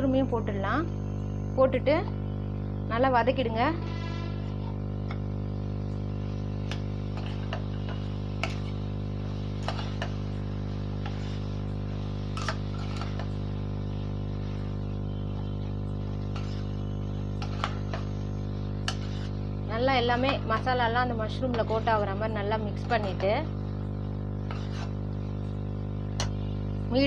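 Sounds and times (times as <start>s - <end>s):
steady electrical hum: 0.0s - 27.0s
steel ladle scraping a pan: 3.8s - 4.9s, 6.3s - 13.4s, 16.2s - 23.4s, 24.3s - 26.6s.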